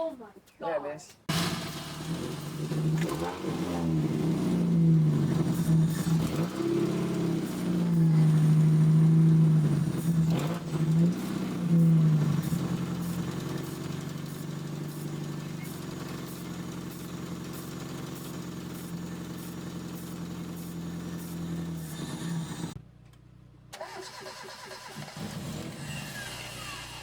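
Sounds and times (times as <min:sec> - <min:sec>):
car engine revving: 0:01.3 - 0:22.8.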